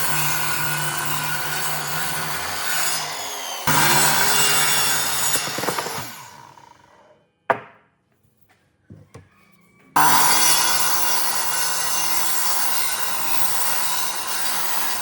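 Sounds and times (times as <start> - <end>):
power tool cutting wood: 0.0 - 7.1, 10.0 - 15.0.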